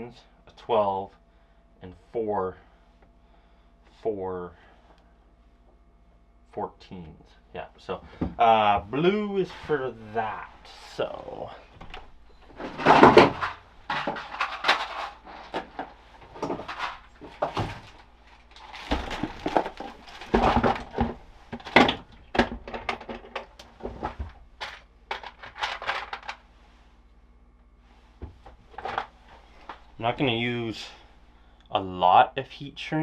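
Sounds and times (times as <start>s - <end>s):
wires and tools clicking and rustling: 11.7s - 26.5s, 28.3s - 30.0s.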